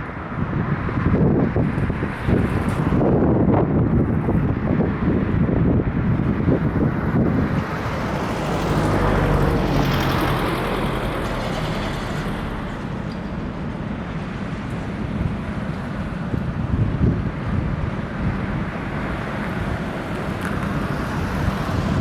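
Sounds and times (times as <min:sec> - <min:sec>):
wind buffeting microphone: 0:00.0 - 0:22.0
motor vehicle passing: 0:06.8 - 0:13.7.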